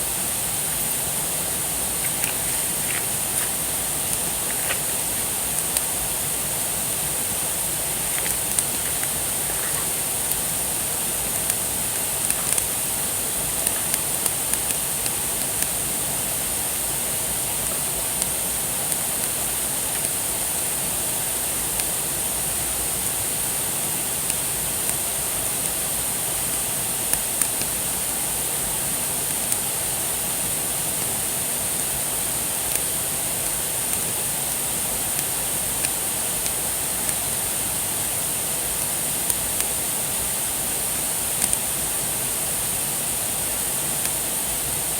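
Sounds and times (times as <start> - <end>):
campfire crackling and popping: 7.4 - 15.7.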